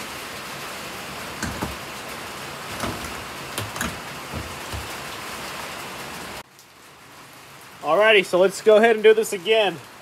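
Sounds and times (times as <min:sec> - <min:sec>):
heavy rain hissing: 0:00.0 - 0:10.0
light knocks and clicks: 0:02.7 - 0:05.0.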